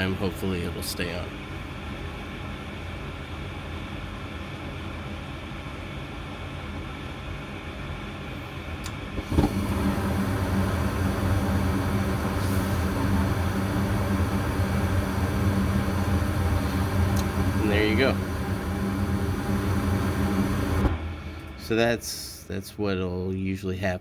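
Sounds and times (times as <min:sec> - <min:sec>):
furnace inducer fan running: 0:00.0 - 0:24.0
furnace low hum: 0:00.0 - 0:24.0
burner ignition click: 0:08.8 - 0:21.6.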